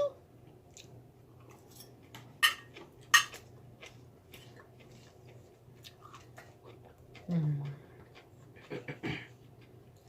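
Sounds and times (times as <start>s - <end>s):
cutlery clinking against dish: 1.7s - 3.4s.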